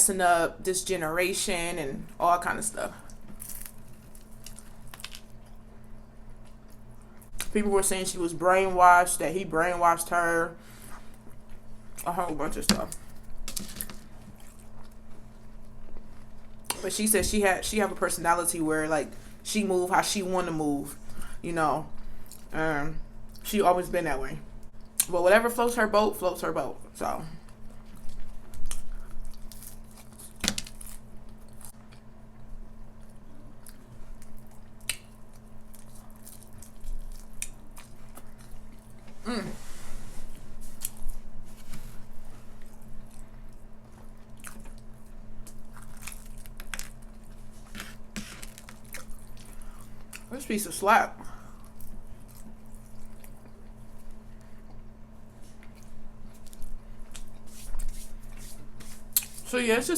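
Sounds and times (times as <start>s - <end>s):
biting and chewing food: 3.1s - 7.5s, 27.5s - 39.2s, 40.6s - 50.3s, 51.6s - 59.4s.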